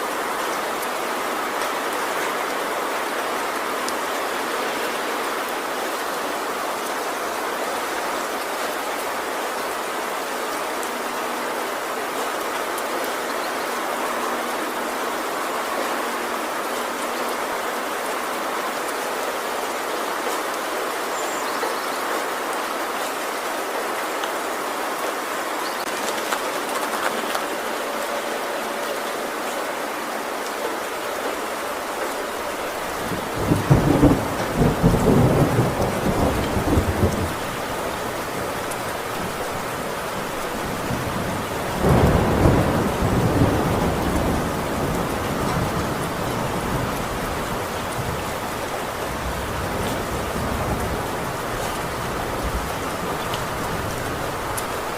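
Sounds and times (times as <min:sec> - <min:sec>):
heavy rain on a metal roof: 0:00.0 - 0:54.9
thunder rolling: 0:32.9 - 0:37.8.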